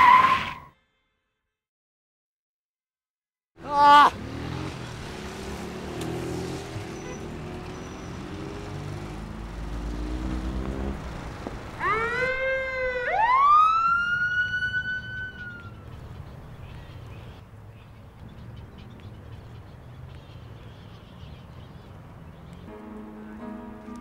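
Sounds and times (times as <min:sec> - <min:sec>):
vehicle engine running: 0:04.2 - 0:12.4
siren wailing: 0:11.8 - 0:15.8.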